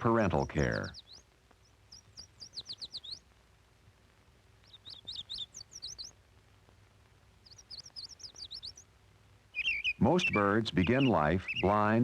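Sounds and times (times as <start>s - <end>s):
nestling birds chirping: 0.0s - 3.4s, 4.4s - 12.0s.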